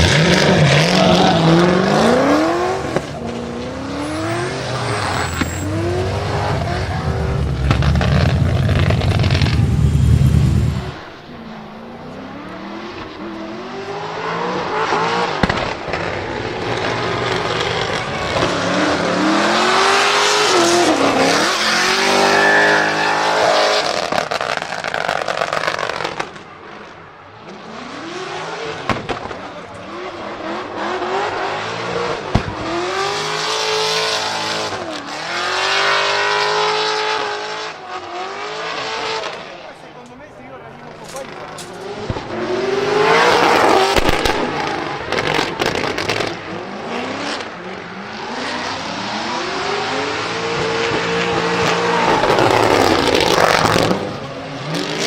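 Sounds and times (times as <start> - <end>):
vee eight engine revving hard: 0.0 - 11.2
exhaust cracks: 0.0 - 12.1, 40.8 - 42.4, 43.2 - 46.6.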